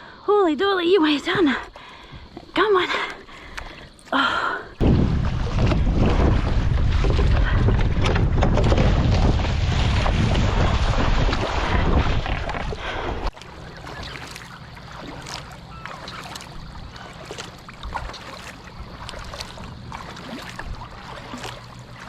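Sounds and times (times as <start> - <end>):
water lapping and dripping: 1.2 - 22.0
wind buffeting microphone: 4.8 - 13.3.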